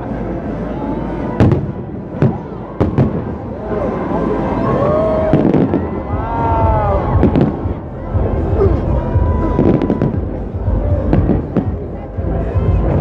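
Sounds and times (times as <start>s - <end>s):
fireworks bangs and crackles: 1.4s - 3.6s, 5.2s - 8.4s, 9.2s - 11.9s
low rumble of bursts: 4.8s - 13.0s.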